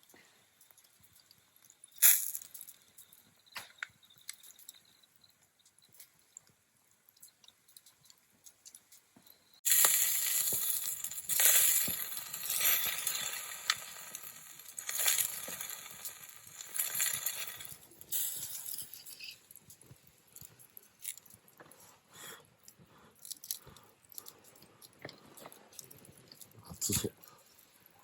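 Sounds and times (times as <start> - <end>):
meat sizzling over embers: 0.7 - 4.9, 9.6 - 21.6.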